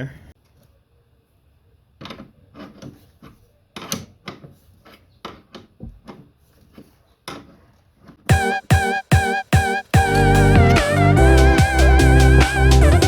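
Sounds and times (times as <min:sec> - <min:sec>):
guitar music with loud chords: 0:08.3 - 0:13.0.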